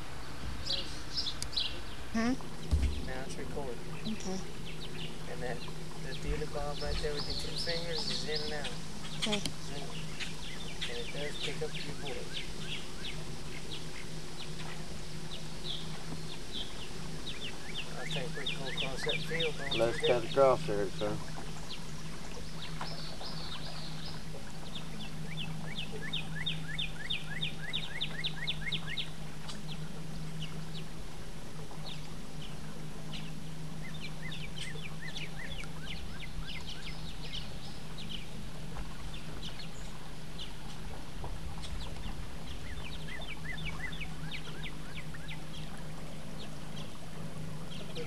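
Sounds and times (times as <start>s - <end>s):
boat motor humming: 0.0s - 48.0s
birds calling: 0.5s - 30.9s, 31.6s - 40.8s, 41.5s - 48.0s.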